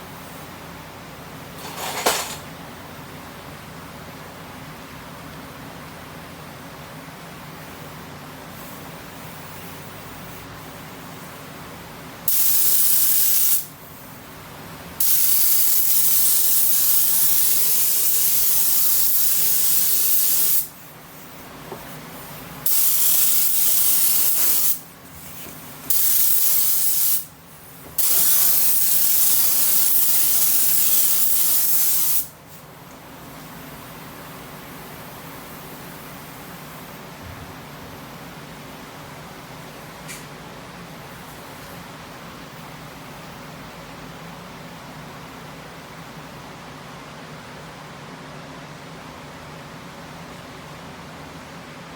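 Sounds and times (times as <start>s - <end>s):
paint spray gun hissing: 12.3s - 13.7s, 15.0s - 21.3s, 22.6s - 27.3s, 28.0s - 32.6s.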